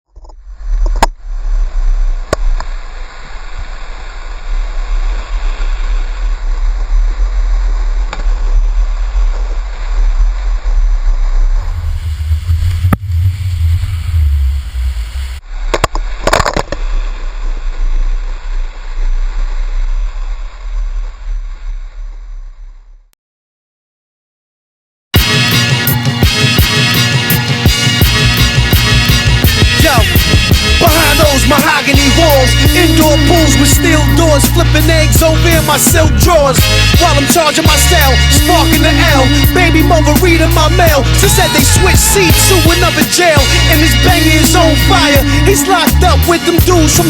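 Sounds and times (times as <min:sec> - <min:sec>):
wind rumble on microphone: 0:00.1 - 0:23.0
water rushing and splashing: 0:02.2 - 0:13.8.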